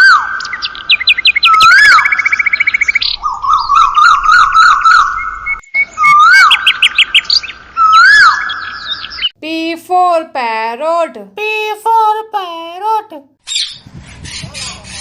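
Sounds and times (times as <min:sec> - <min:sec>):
bird chirps and trills: 0:00.0 - 0:09.4, 0:13.4 - 0:15.0
swooping whistle: 0:04.6 - 0:06.8.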